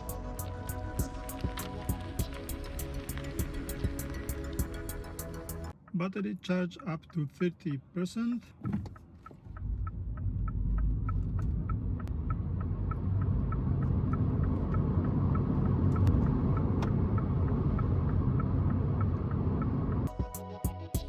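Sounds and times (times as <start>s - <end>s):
electric car accelerating: 0.0s - 5.7s, 9.5s - 20.1s
music: 0.0s - 5.7s, 20.1s - 21.0s
road and tyre rumble: 0.0s - 5.8s, 8.5s - 20.1s.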